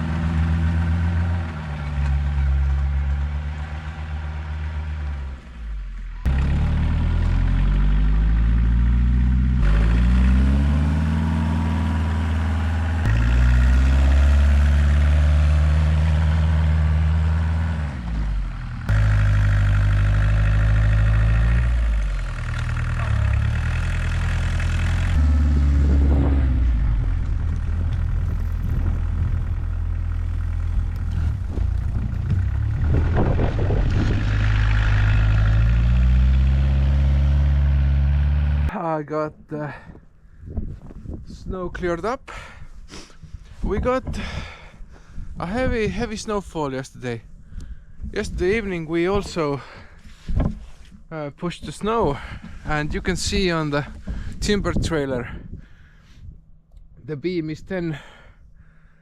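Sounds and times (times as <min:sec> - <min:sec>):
diesel engine revving under load: 0:00.0 - 0:38.7.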